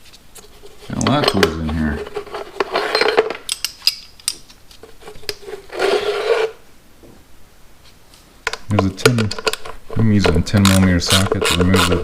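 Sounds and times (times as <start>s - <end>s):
metal scraping against metal: 0.5s - 4.0s, 4.8s - 6.6s
metal hand tools clinking: 2.7s - 4.4s.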